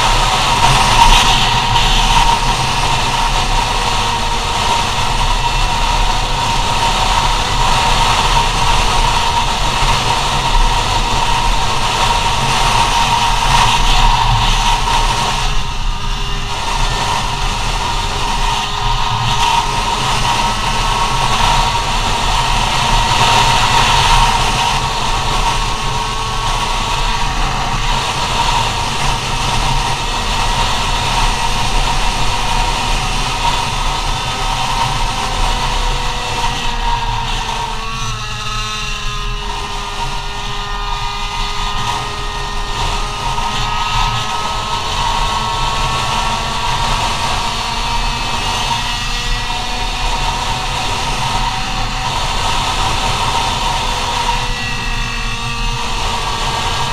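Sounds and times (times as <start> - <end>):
rushing wind: 0.0 - 56.9
scooter engine buzzing at high revs: 0.0 - 56.9.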